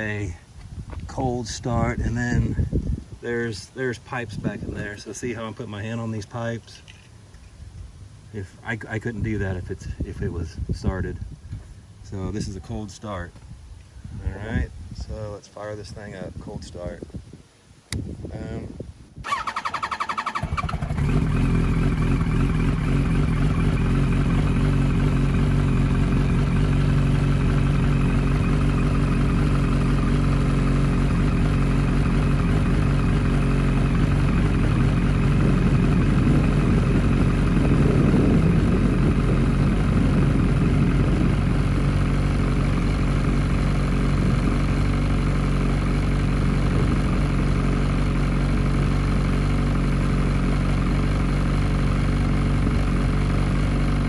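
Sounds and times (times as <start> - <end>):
starter motor cranking: 19.2 - 23.9
motorcycle engine idling: 19.2 - 54.0.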